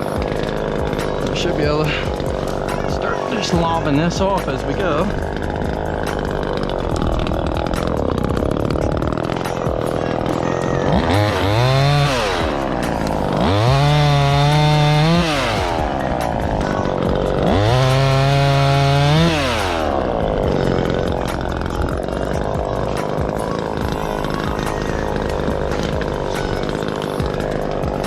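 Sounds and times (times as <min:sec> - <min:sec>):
chainsaw revving: 0:00.0 - 0:28.0.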